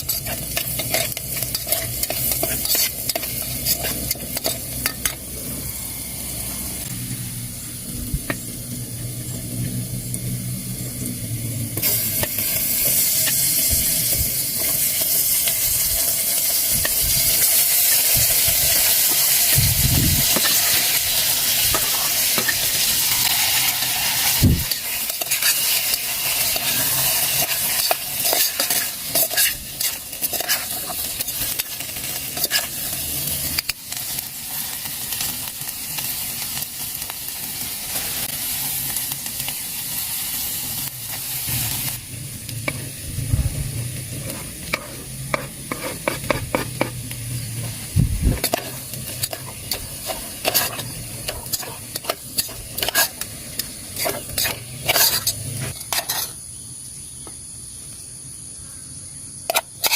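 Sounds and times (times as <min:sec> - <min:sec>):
utensil scraping a pan: 0:00.0 - 0:05.3, 0:20.2 - 0:33.0, 0:43.8 - 0:56.4, 0:59.5 - 0:59.9
food sizzling in a pan: 0:00.0 - 0:56.9, 0:59.4 - 0:59.9.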